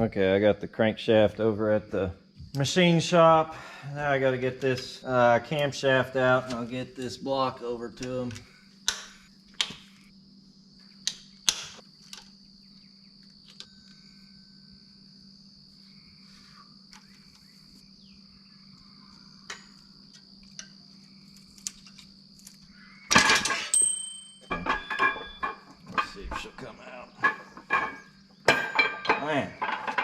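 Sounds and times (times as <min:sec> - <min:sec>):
crickets chirping: 0:00.0 - 0:30.0
metal clatter with ringing: 0:23.1 - 0:30.0
metal clicks and knocks: 0:24.4 - 0:30.0.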